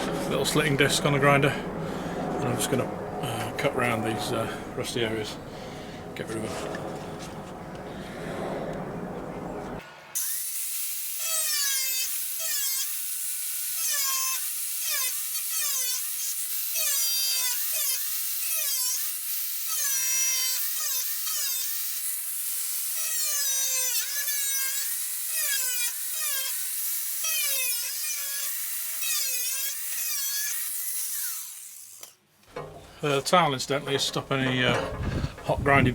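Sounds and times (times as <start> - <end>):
angle grinder cutting sheet metal: 10.1 - 32.8.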